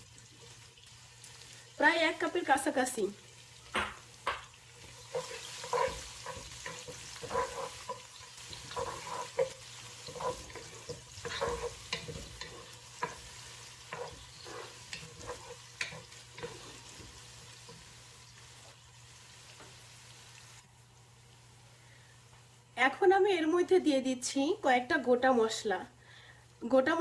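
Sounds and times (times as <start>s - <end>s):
onions sizzling in oil: 0.0s - 25.8s
spoon knocking and scraping pot: 3.7s - 17.9s.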